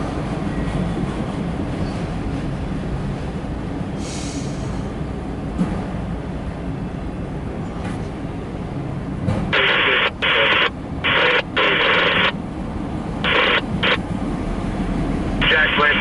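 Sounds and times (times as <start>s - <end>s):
freight train rumble: 0.0s - 16.0s
radio static bursts: 9.5s - 12.4s, 13.2s - 14.0s, 15.4s - 16.0s.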